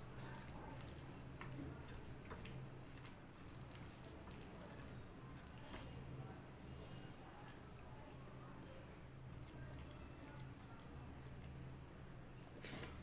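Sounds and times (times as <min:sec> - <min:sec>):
wet chewing sounds: 0:00.0 - 0:06.2.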